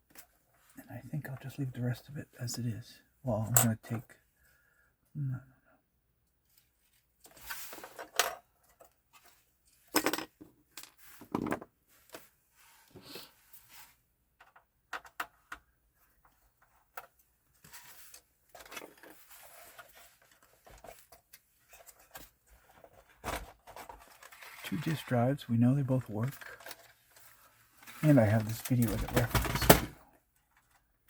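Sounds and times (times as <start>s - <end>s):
console parts clicking and rattling: 14.4s - 15.7s, 18.1s - 25.2s, 26.0s - 31.0s.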